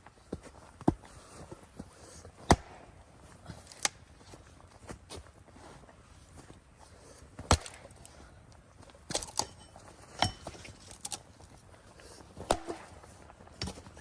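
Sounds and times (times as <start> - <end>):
irregular knocks and clinks: 9.2 - 11.0.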